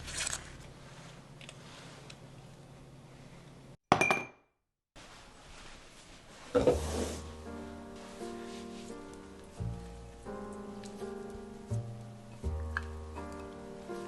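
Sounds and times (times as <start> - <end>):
glass clinking: 3.9 - 4.4.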